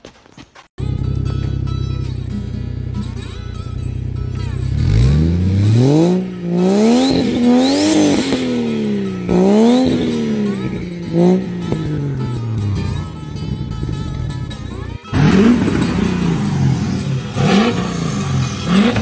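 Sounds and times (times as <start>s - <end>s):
vehicle engine revving: 0.8s - 19.0s.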